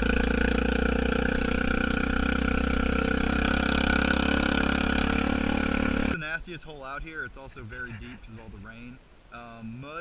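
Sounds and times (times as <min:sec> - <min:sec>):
atv engine running steadily: 0:00.0 - 0:06.2.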